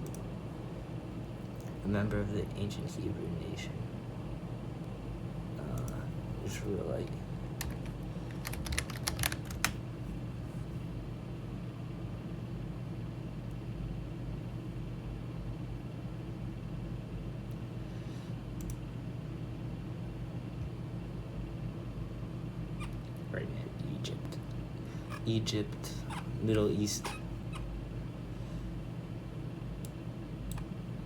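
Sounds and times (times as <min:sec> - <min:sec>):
keyboard typing: 0:07.6 - 0:09.8.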